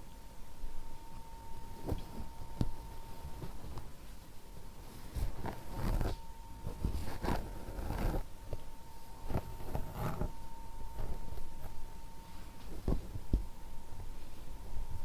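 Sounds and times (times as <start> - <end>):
faint high hum: 0.0 - 15.0
scratchy brushing strokes: 4.8 - 8.3, 9.2 - 13.2.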